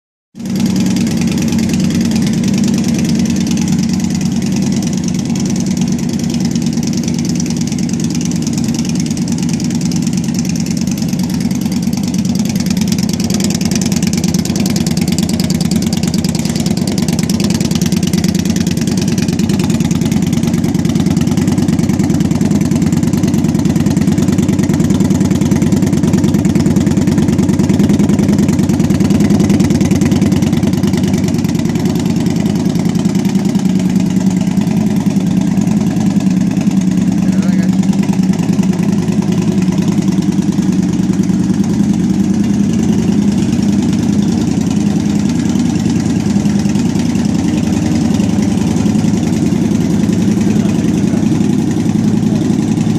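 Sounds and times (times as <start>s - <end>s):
motorcycle engine idling: 0.4s - 52.9s.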